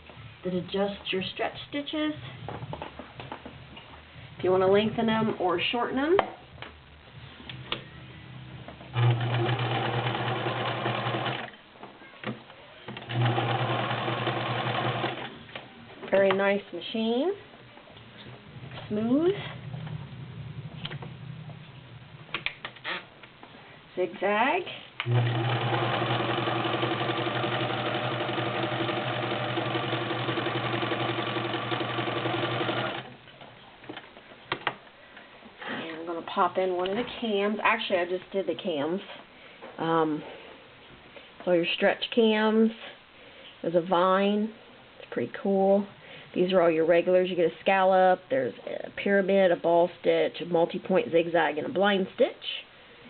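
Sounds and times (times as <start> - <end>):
sewing machine motor humming: 9.0 - 11.5, 13.0 - 15.3, 25.0 - 33.1
sewing machine stitching: 9.0 - 11.5, 12.9 - 15.4, 25.0 - 33.1.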